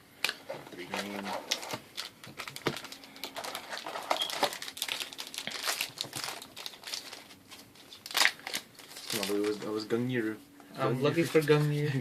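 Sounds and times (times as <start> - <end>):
foil packs crinkling: 0.9 - 9.9.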